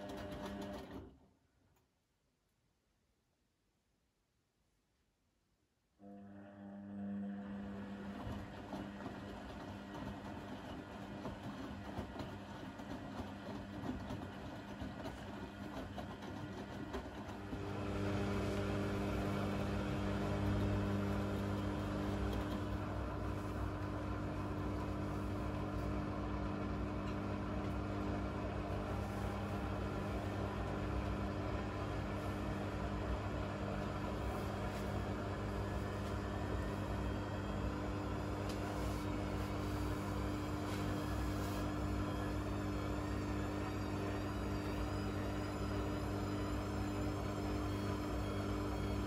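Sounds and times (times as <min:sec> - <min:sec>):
washing machine running: 0:00.0 - 0:01.1, 0:06.1 - 0:49.0
motor humming: 0:15.1 - 0:49.0.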